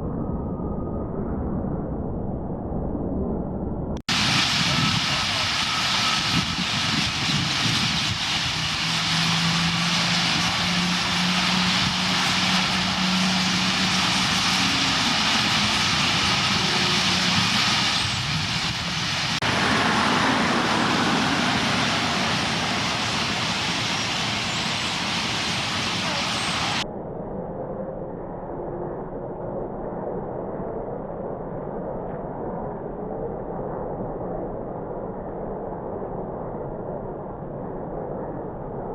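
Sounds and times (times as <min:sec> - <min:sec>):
flock of birds calling: 0:04.1 - 0:26.8
low engine hum: 0:04.1 - 0:26.8
road traffic: 0:04.1 - 0:26.8.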